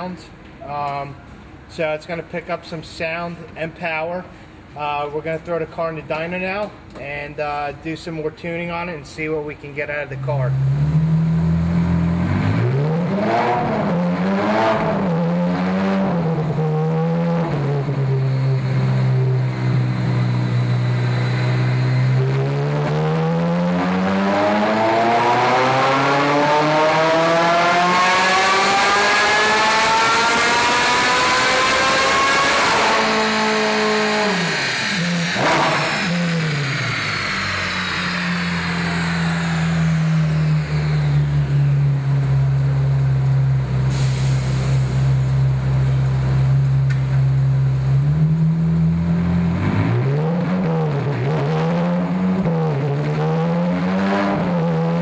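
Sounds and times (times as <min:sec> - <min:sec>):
sports car engine revving: 0:10.5 - 0:44.7, 0:45.8 - 0:55.0.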